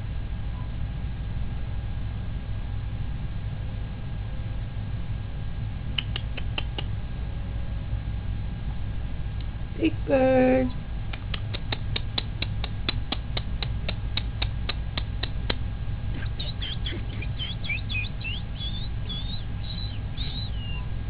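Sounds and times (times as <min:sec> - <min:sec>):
quick even clicks: 0:06.0 - 0:06.9, 0:11.1 - 0:15.6
cockatiel chirping: 0:16.2 - 0:20.9.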